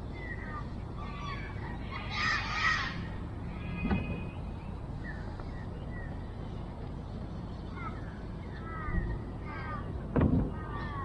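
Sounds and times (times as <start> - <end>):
harsh bird call: 0.0 - 5.3, 7.7 - 11.0
faint bird chirps: 0.0 - 11.0
low background noise: 0.0 - 11.0.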